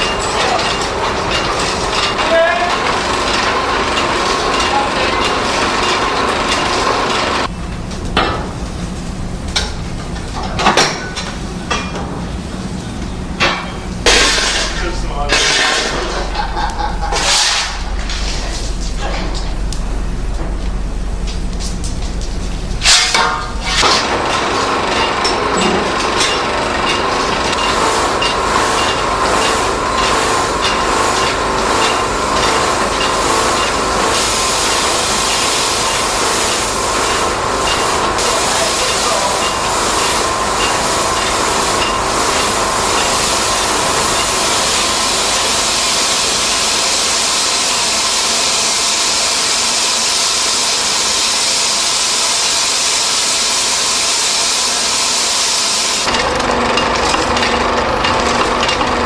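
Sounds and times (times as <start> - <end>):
steam machinery beating: 0.0 - 59.0
steam hissing: 22.4 - 56.6.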